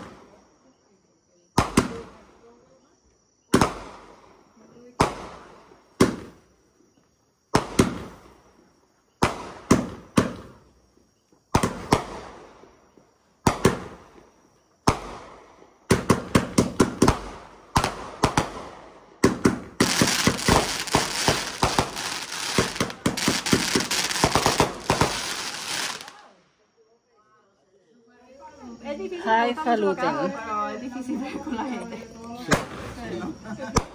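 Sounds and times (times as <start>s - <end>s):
fireworks bangs: 1.6s - 2.2s, 3.5s - 4.3s, 5.0s - 6.4s, 7.5s - 8.5s, 9.2s - 10.6s, 11.5s - 26.4s, 32.5s - 33.1s.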